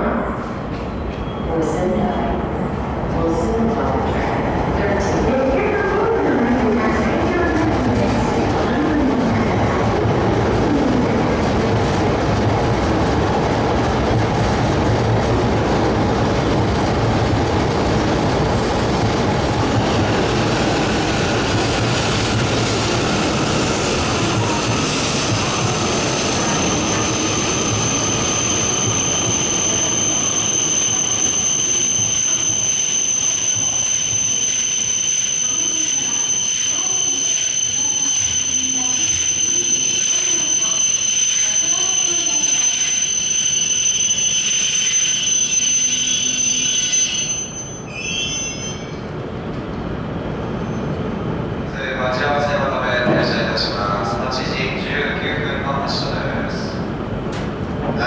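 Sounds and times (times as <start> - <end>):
train wheels rumbling: 2.7 - 32.1
high-pitched brake squeal: 25.7 - 49.1, 50.6 - 51.0.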